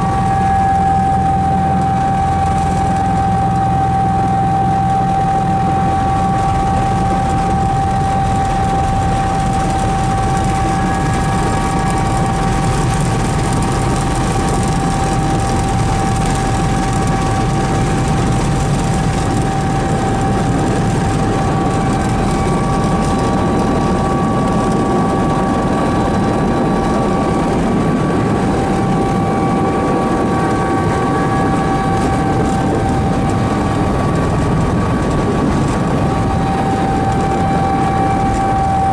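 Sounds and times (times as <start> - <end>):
helicopter engine and rotor drone: 0.0 - 38.9
high whine: 0.0 - 38.9.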